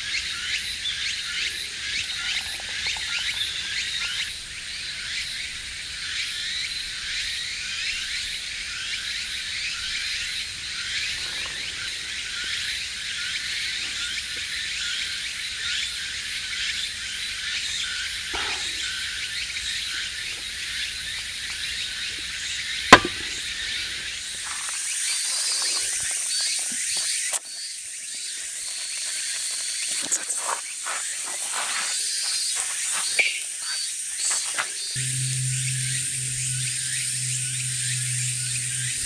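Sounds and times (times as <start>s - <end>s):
sharp crack: 22.9s - 23.6s.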